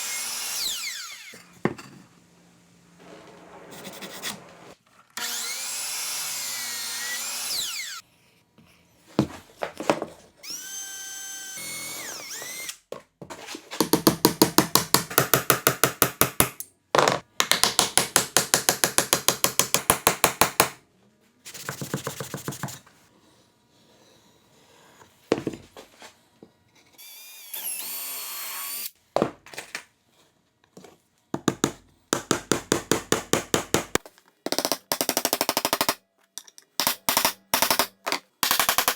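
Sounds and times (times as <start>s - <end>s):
power tool cutting wood: 0.0s - 1.4s, 5.2s - 8.0s, 10.5s - 12.8s, 27.0s - 28.9s.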